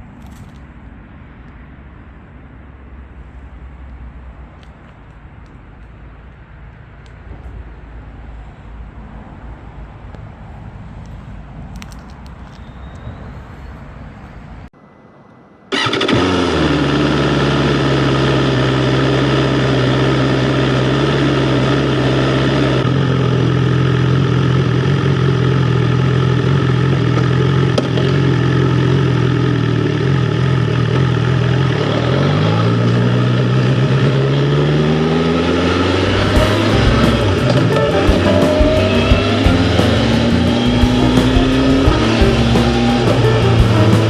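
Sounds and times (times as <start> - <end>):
motorcycle engine running: 36.2 - 44.0.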